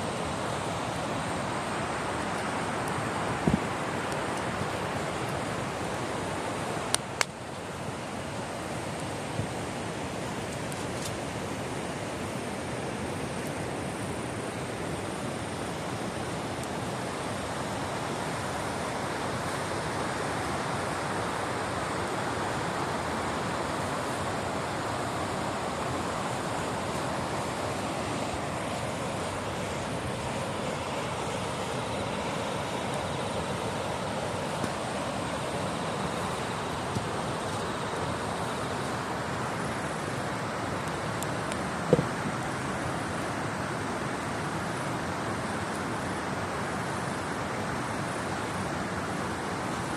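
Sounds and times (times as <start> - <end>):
campfire crackling and popping: 2.3 - 5.8, 6.8 - 7.6, 8.8 - 11.4, 40.6 - 42.4.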